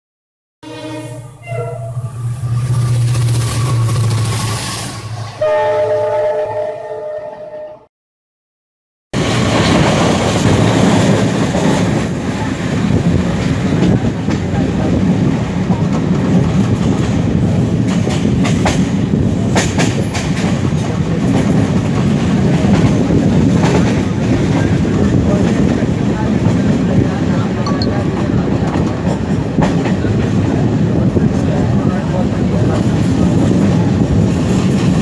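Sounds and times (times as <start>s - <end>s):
train horn: 0.6s - 2.5s, 5.2s - 7.9s
train rumbling on rails: 0.6s - 6.4s, 9.2s - 35.0s.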